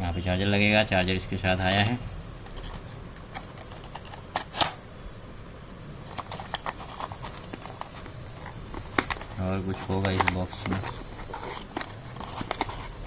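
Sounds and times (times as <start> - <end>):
packaging rustling: 6.1 - 13.0
box clicks and taps: 11.5 - 12.8.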